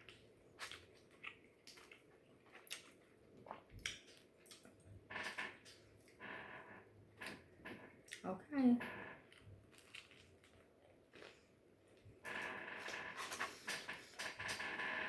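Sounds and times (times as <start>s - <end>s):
chewing food: 0.0s - 6.2s, 8.0s - 8.3s, 9.2s - 14.7s.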